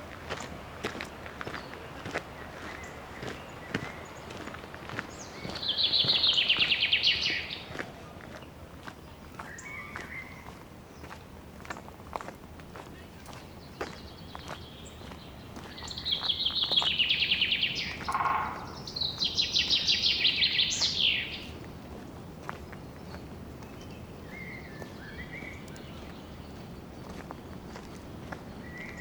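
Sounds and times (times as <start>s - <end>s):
songbird trilling: 5.2s - 7.7s, 13.0s - 21.6s
outdoor hush: 15.8s - 22.2s
faint bird call: 16.2s - 21.5s.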